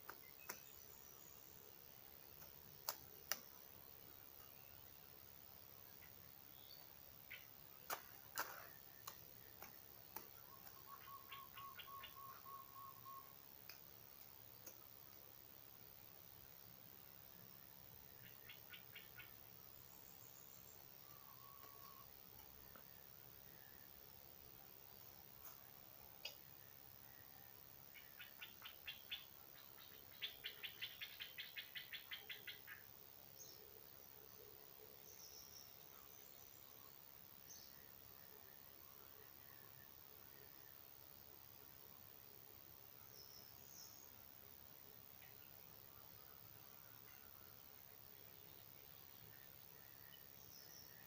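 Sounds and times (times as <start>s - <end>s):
sharp ticks: 2.4s - 3.6s, 7.3s - 10.8s, 13.6s - 14.8s
faint bird call: 10.4s - 13.4s, 21.0s - 22.1s.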